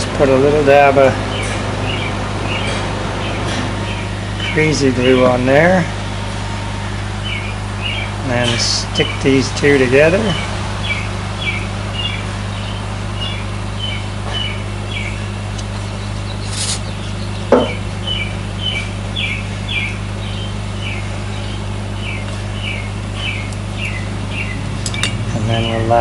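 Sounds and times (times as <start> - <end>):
low hum: 0.0 - 26.0
small bird chirping: 7.2 - 26.0
sharp knock: 17.5 - 17.8.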